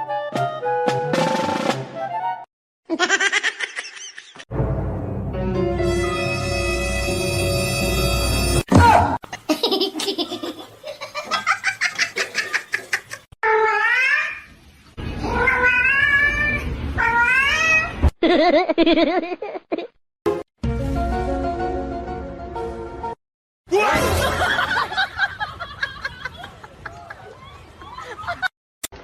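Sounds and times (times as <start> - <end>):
music: 0.0 - 2.4, 4.5 - 8.7, 20.3 - 23.2.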